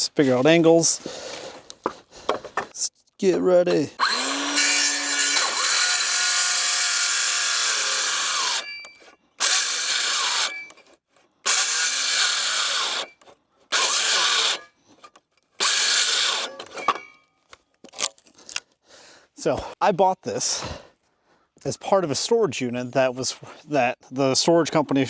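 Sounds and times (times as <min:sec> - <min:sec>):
power saw cutting wood: 0:03.7 - 0:10.8, 0:11.4 - 0:14.8, 0:15.6 - 0:17.1.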